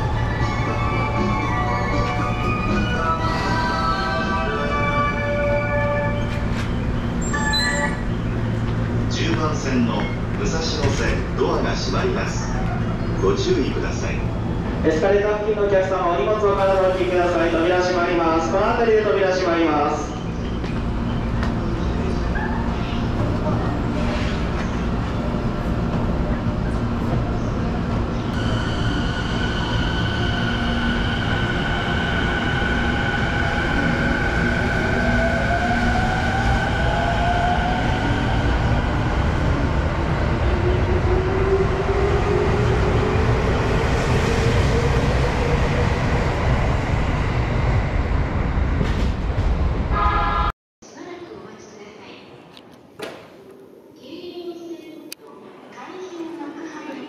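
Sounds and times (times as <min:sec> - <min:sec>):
wheels rumbling on rails: 0:20.1 - 0:50.0
electric train accelerating: 0:22.9 - 0:49.9.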